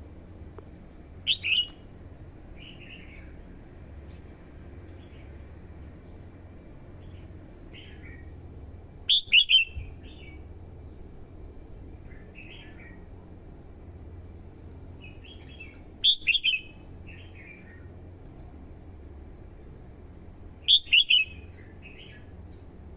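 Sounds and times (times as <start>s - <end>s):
faint low hum: 0.0s - 22.9s
bulbul singing: 1.2s - 1.9s, 2.5s - 3.4s, 7.0s - 8.4s, 9.0s - 10.5s, 12.0s - 13.1s, 15.0s - 18.0s, 20.6s - 22.4s.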